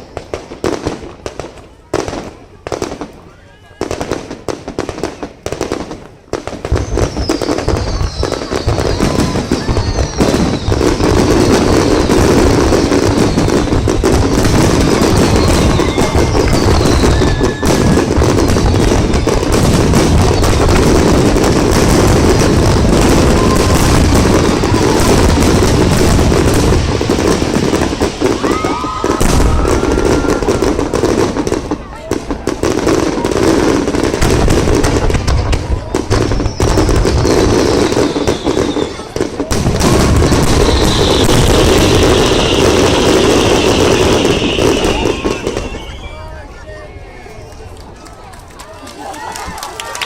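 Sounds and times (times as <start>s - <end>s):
fireworks bursts and crackling: 0.0s - 50.0s
whistles gliding down in pitch: 44.2s - 46.4s.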